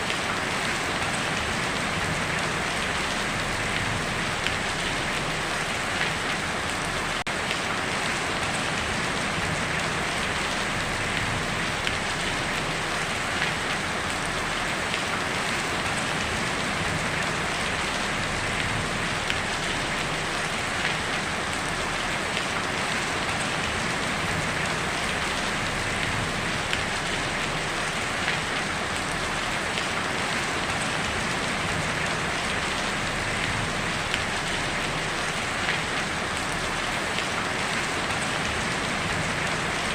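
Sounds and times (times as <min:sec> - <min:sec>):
heavy rain on a tin roof: 0:00.0 - 0:39.9.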